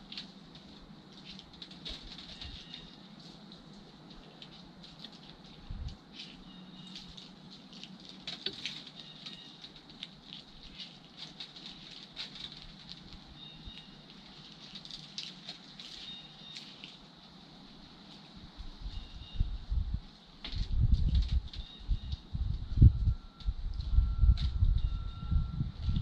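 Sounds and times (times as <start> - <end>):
squirrel cracking and chewing seeds: 0.0 - 18.6.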